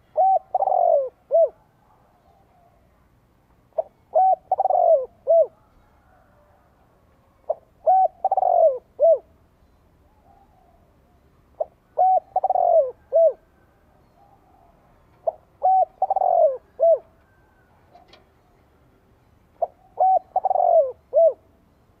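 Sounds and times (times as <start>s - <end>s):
dove cooing: 0.0s - 2.8s, 3.8s - 6.7s, 7.4s - 9.4s, 11.6s - 18.2s, 19.6s - 21.6s.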